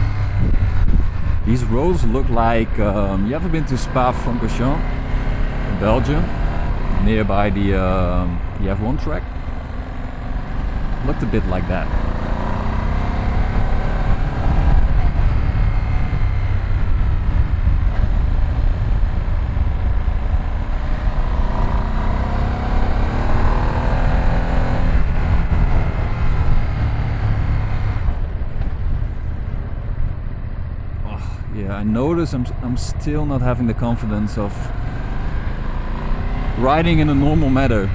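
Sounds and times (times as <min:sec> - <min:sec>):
motorcycle engine running: 0:00.0 - 0:01.5
low wind rumble: 0:00.0 - 0:37.9.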